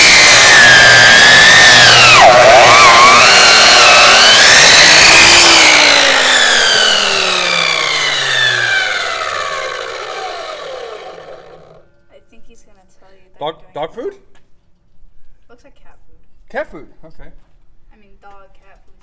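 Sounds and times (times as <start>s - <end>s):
electric saw cutting through bone: 0.0s - 11.8s
saw motor winding down: 0.0s - 11.8s.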